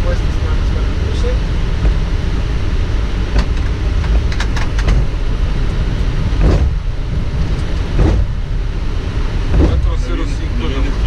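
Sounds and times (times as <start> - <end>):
airliner taxiing rumble: 0.0 - 11.0
short thump: 6.4 - 6.8, 7.9 - 8.4, 9.5 - 9.9.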